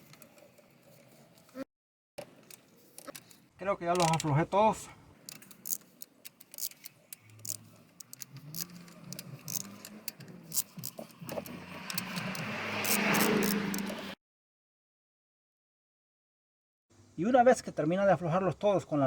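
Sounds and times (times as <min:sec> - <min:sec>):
metallic clicks of hand tools: 0:02.2 - 0:04.4, 0:05.2 - 0:14.2.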